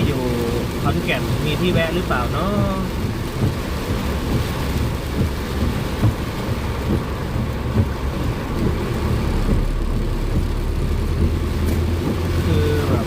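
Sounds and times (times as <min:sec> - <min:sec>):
heavy rain on car roof: 0:00.0 - 0:13.0
low thuds of heavy drops: 0:02.9 - 0:13.0.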